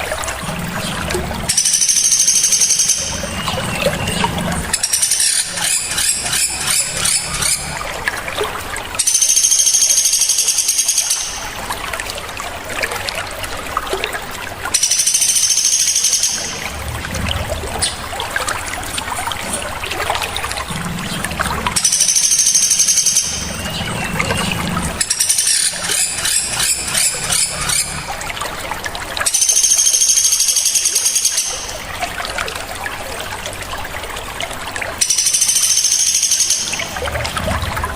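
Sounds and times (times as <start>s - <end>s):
running water trickling: 0.0s - 37.9s
ticking bird chatter: 0.8s - 7.8s, 9.0s - 11.6s, 14.7s - 16.7s, 20.6s - 28.1s, 29.3s - 31.8s, 35.0s - 37.0s
songbird trill: 1.5s - 7.6s, 14.8s - 16.7s, 21.8s - 27.9s, 29.3s - 31.8s, 35.0s - 37.0s.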